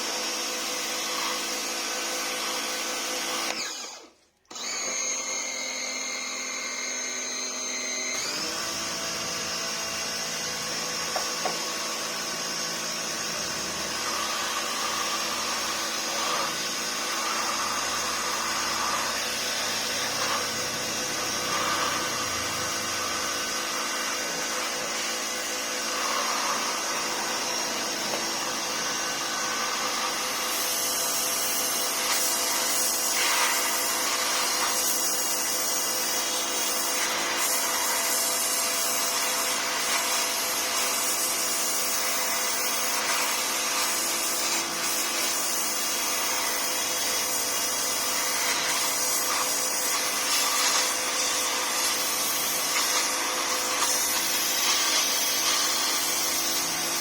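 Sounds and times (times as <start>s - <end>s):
motor whirring: 3.4s - 8.4s.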